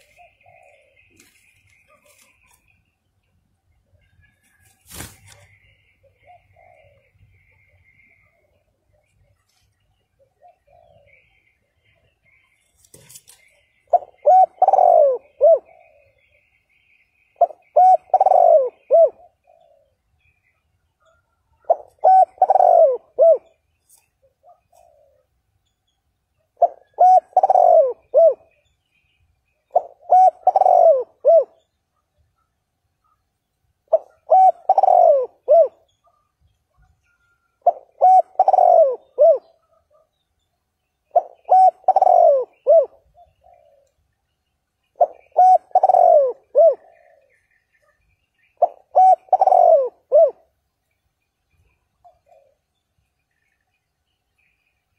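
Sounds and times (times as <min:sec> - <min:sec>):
dove cooing: 0:00.0 - 0:02.7, 0:05.2 - 0:09.1, 0:10.0 - 0:12.2, 0:13.0 - 0:16.5, 0:17.3 - 0:20.3, 0:21.0 - 0:25.3, 0:26.4 - 0:28.7, 0:29.6 - 0:33.2, 0:33.9 - 0:40.1, 0:41.0 - 0:44.0, 0:44.9 - 0:50.6, 0:51.6 - 0:52.7.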